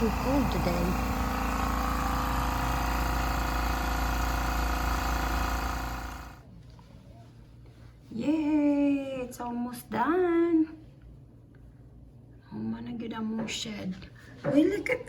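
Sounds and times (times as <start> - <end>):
machine humming: 0.0 - 6.4.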